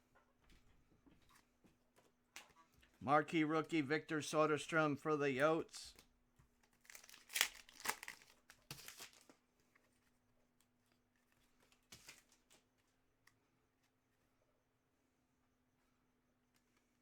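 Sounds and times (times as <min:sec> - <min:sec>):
foil wrapper crinkling and tearing: 0:06.6 - 0:09.4
cards being shuffled: 0:06.7 - 0:09.9.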